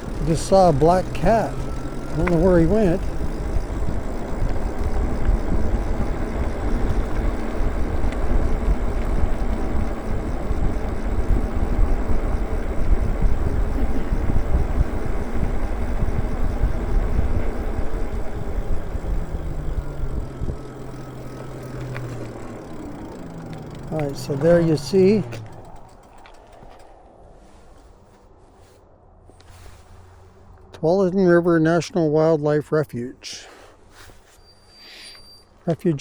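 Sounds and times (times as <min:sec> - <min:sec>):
tyres and electric motor hum: 0:00.0 - 0:27.6
wind buffeting microphone: 0:00.0 - 0:28.1
faint whine: 0:00.0 - 0:36.0.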